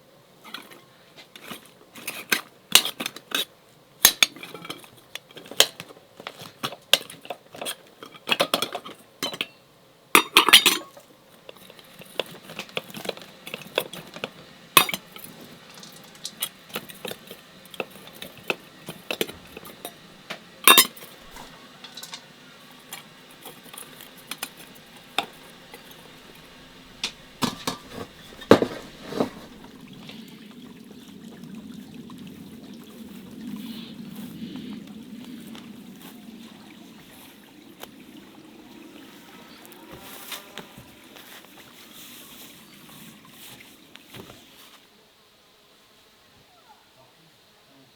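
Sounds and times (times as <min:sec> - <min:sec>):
kitchenware clinking and knocking: 0:10.2 - 0:11.0, 0:20.7 - 0:22.3, 0:23.6 - 0:29.8.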